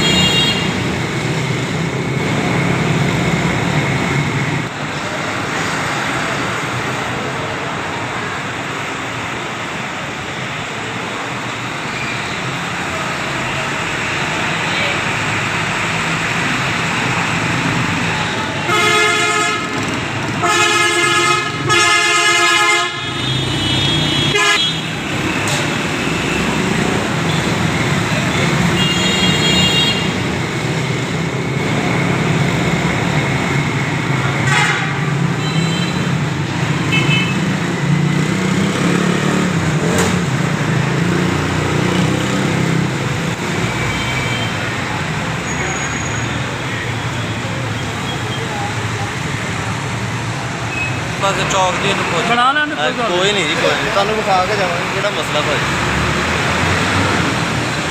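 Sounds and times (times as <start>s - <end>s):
vehicle horn honking: 0.0s - 0.8s, 18.6s - 19.8s, 20.4s - 25.0s, 28.7s - 30.2s, 34.4s - 36.2s, 36.9s - 37.4s
lorry diesel engines running: 0.0s - 57.9s
higher-pitched horn honks: 18.6s - 19.8s, 20.4s - 25.0s, 34.4s - 36.1s.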